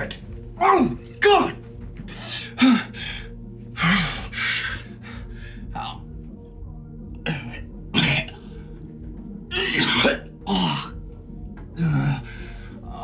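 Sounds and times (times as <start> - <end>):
quiet background music: 0.0 - 13.0
person coughing hard: 7.2 - 8.5, 9.5 - 11.0.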